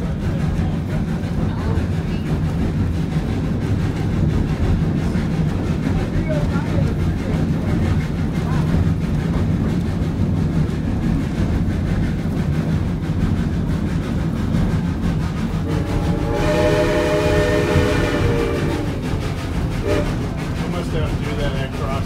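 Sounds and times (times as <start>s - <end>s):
steam train rumbling: 0.0s - 22.0s
steam locomotive whistle: 15.6s - 19.0s, 19.8s - 20.2s.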